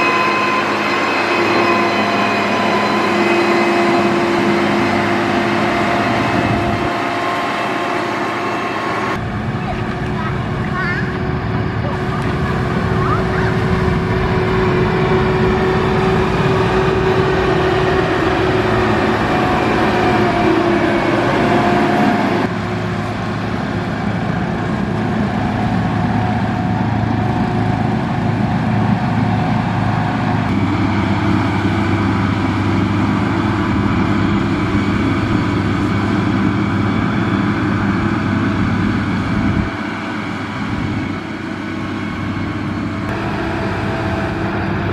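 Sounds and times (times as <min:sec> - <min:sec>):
grader diesel engine running: 0:00.0 - 0:44.9.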